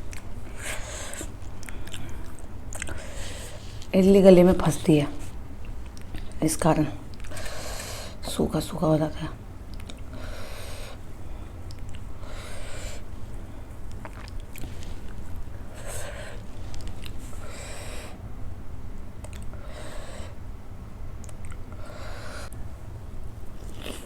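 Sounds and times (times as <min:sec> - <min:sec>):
wet chewing clicks: 0:00.0 - 0:03.2, 0:05.4 - 0:06.4, 0:07.1 - 0:08.0, 0:09.6 - 0:10.2, 0:11.6 - 0:12.6, 0:13.8 - 0:17.4, 0:19.2 - 0:19.6, 0:21.2 - 0:21.8
person breathing: 0:00.4 - 0:03.9, 0:07.3 - 0:08.2, 0:10.1 - 0:13.9, 0:14.7 - 0:18.2, 0:19.5 - 0:20.4.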